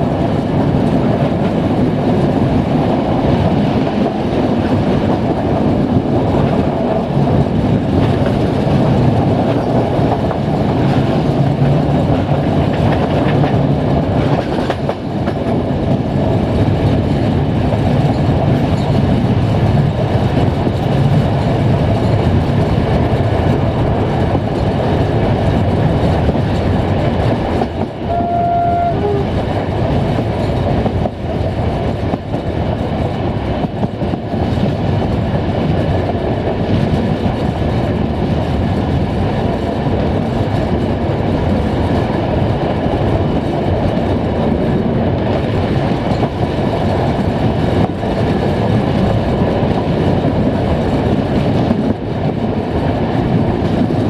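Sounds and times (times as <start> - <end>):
train rumbling on rails: 0.0 - 54.0
wind rush: 0.0 - 54.0
two-tone train horn: 28.0 - 29.6.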